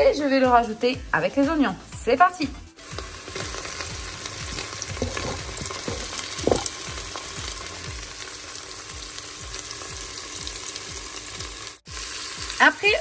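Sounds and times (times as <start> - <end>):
vegetables sizzling in oil: 2.8 - 13.0.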